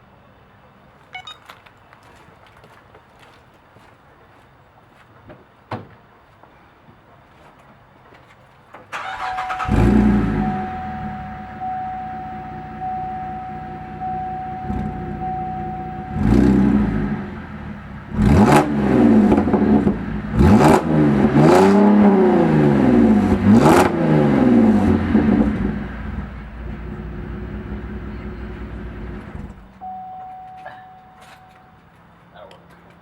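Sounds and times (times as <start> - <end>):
car engine idling and revving: 9.0 - 31.7.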